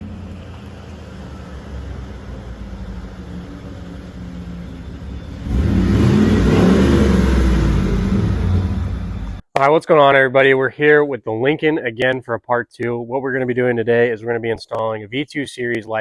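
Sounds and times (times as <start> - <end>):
car engine idling and revving: 0.0 - 9.4.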